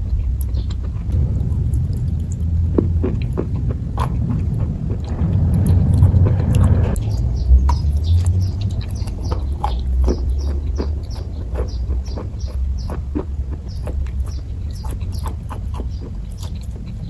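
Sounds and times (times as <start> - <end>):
chewing soft fudge: 0.0 - 17.0
low rumble: 0.0 - 17.0
wet mouth clicks: 7.7 - 17.0.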